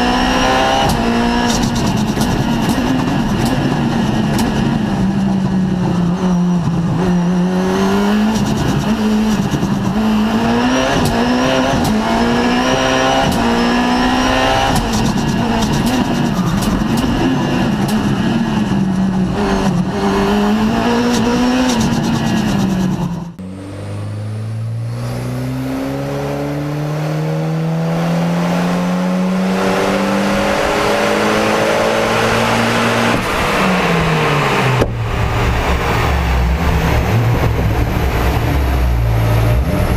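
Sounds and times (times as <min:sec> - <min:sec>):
car accelerating hard: 0:00.0 - 0:39.9
car engine revving high: 0:00.0 - 0:39.9
exhaust cracks: 0:00.7 - 0:06.0, 0:08.2 - 0:13.6, 0:14.2 - 0:23.4.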